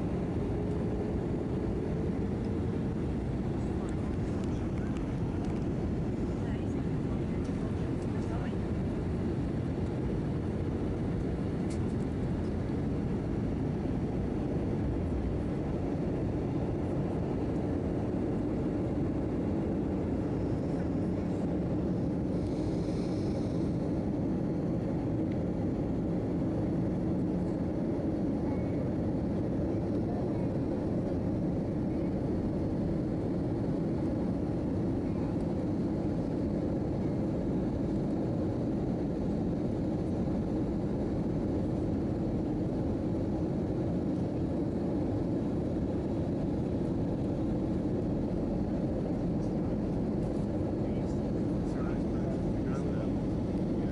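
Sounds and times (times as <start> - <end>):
jet engines droning: 0.0 - 53.9
rushing airflow: 18.9 - 27.1.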